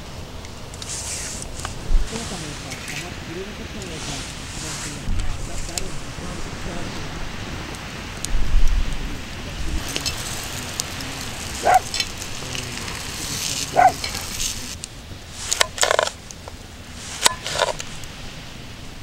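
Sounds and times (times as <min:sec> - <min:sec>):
mushrooms sizzling in a frying pan: 0:09.6 - 0:15.7.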